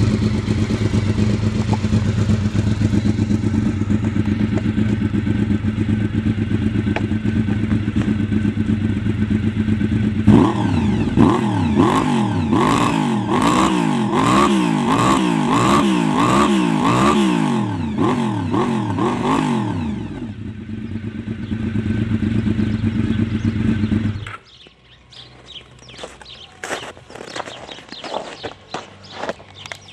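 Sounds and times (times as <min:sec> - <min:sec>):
faint engine ticks: 0:00.0 - 0:08.8
motorcycle engine revving and idling: 0:00.0 - 0:29.9.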